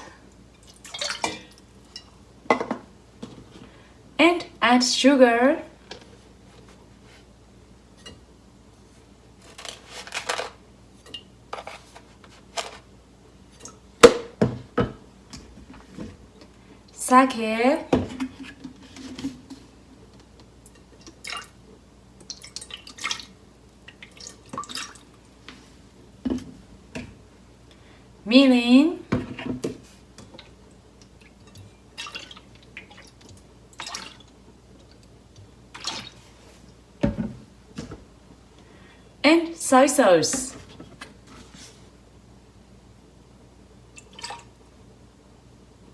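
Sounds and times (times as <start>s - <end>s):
liquid trickling and dripping: 22.2s - 25.3s, 30.2s - 35.1s.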